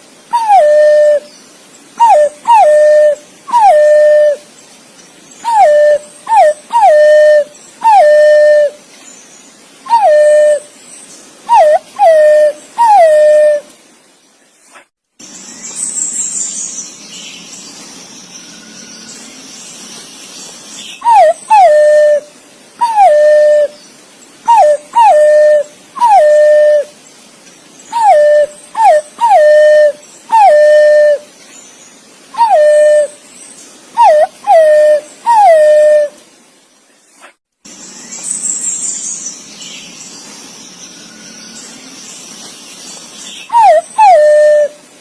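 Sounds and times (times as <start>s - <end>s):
pigeon whistled calls: 2.0s - 4.4s, 5.4s - 8.7s, 21.0s - 22.2s, 22.8s - 23.7s, 24.5s - 26.9s, 28.0s - 31.2s, 34.0s - 36.1s, 43.5s - 44.8s.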